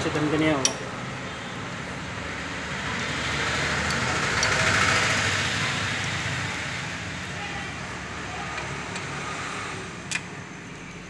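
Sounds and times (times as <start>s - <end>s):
vehicle passing: 1.0s - 11.0s.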